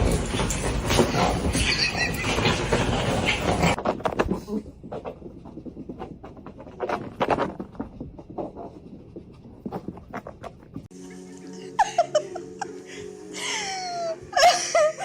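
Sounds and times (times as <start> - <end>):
background music: 10.9 - 15.0.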